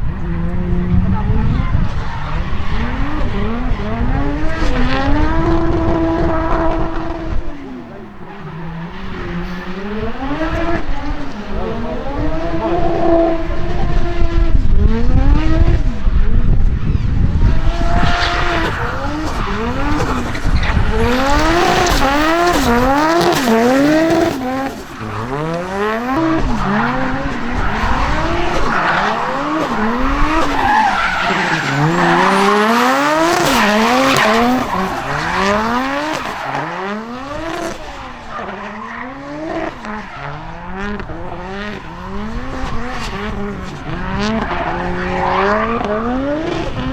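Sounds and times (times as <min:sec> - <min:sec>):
car engines revving hard: 0:00.0 - 0:46.9
tyre squeal: 0:18.0 - 0:40.3.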